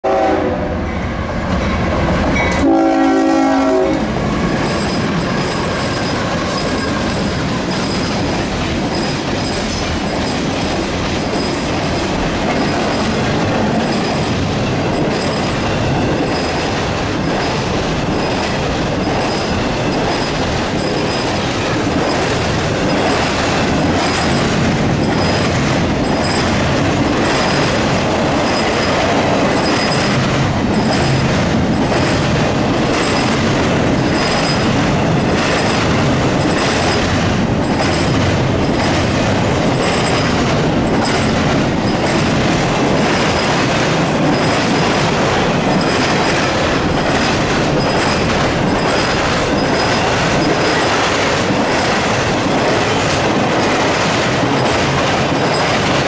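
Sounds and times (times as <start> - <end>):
train horn blast: 0.0 - 1.4, 2.4 - 4.1
freight train rumbling past: 0.0 - 56.0
wheels clattering over rail joints: 4.3 - 56.0.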